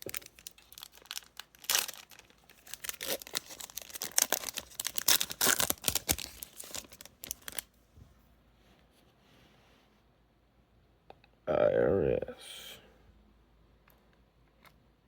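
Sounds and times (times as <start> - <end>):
foil wrapper tearing and crinkling: 0.0 - 7.7.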